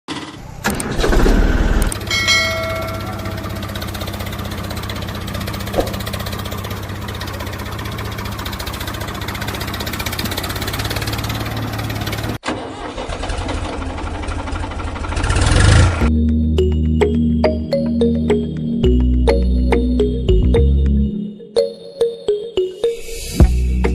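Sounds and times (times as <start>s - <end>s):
tractor engine running: 0.1s - 21.0s.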